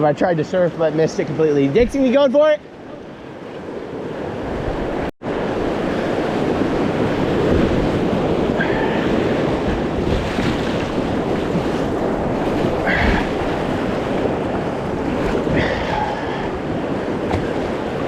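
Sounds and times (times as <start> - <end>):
wind buffeting microphone: 3.1 - 18.0
whitewater rushing: 5.6 - 18.0.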